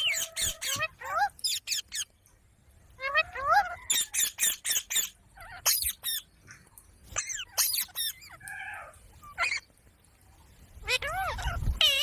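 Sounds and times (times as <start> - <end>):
parrot squawking: 0.0 - 2.1, 3.0 - 6.3, 7.1 - 9.7, 10.8 - 12.0.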